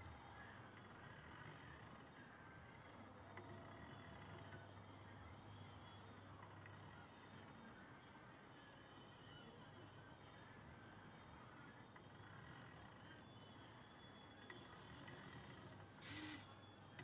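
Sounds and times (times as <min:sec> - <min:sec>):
faint stepper motor whine: 0:16.0 - 0:16.4.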